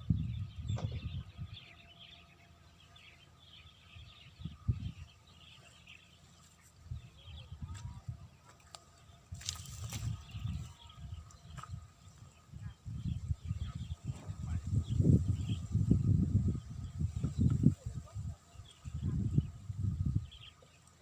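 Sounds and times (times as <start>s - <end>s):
low rumbles or bumps: 0.0s - 1.8s, 9.3s - 17.6s
birds chirping: 0.0s - 21.0s.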